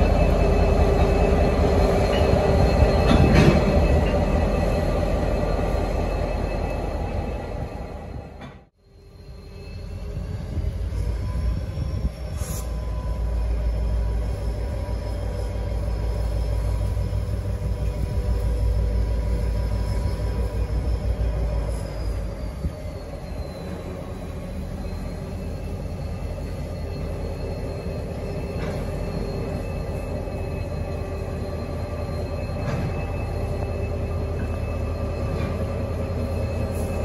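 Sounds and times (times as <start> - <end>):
freight locomotive rumble: 0.0 - 37.0
high-pitched wheel squeal: 0.0 - 37.0.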